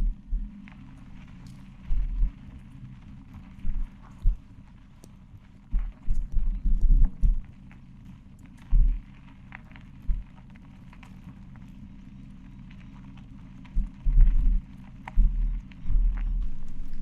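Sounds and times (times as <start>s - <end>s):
dull low thuds: 0.0s - 0.6s, 1.9s - 2.4s, 3.6s - 4.4s, 5.7s - 7.4s, 8.7s - 9.1s, 10.1s - 10.3s, 13.7s - 17.0s
wind buffeting microphone: 0.0s - 4.5s, 13.5s - 17.0s
low rumble: 0.0s - 10.5s, 12.0s - 17.0s.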